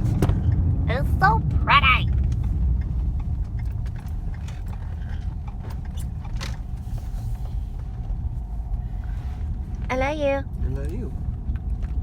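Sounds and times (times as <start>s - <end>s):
car road rumble: 0.0s - 12.0s
small clicks and rattles: 2.1s - 6.8s.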